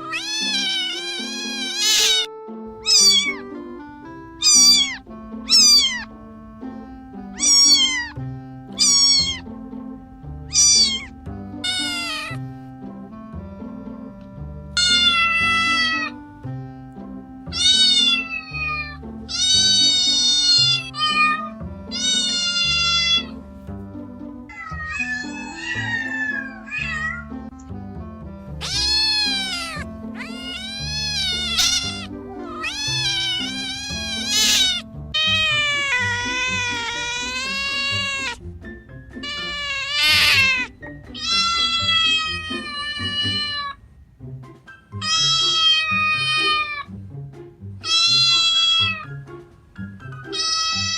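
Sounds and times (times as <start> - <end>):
kittens meowing: 0.0 - 3.6, 4.3 - 6.2, 7.3 - 9.6, 10.5 - 12.4, 14.8 - 16.2, 17.5 - 23.4, 24.5 - 27.5, 28.5 - 43.8, 45.0 - 47.0, 47.8 - 49.2, 50.2 - 50.9
background music: 0.0 - 50.9.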